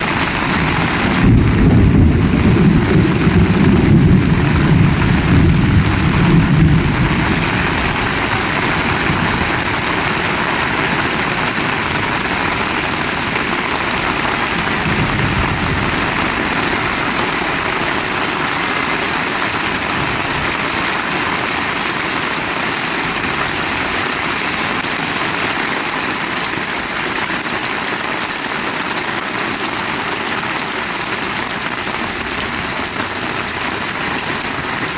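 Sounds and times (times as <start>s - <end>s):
heavy rain: 0.0s - 34.9s
deep rumble: 0.8s - 10.0s.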